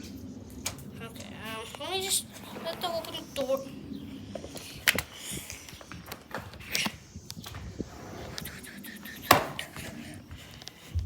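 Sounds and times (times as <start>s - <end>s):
footsteps and shuffling: 2.3s - 11.0s.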